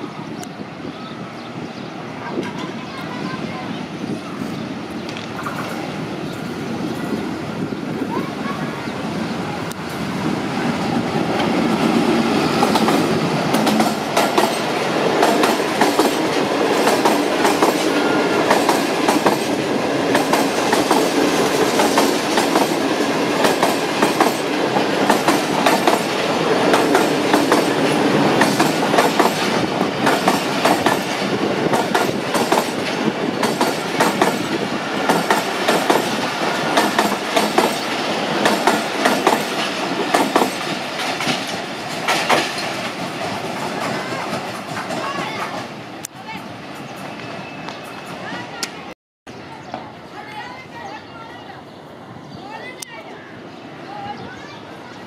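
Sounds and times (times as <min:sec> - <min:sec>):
train wheels clickety-clack: 0:05.1 - 0:05.9, 0:11.3 - 0:45.7.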